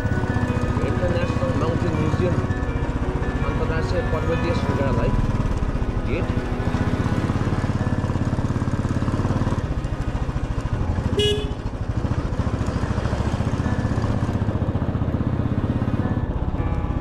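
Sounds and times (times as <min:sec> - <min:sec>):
motorcycle engine running: 0:00.0 - 0:17.0
horn toot: 0:11.1 - 0:11.7.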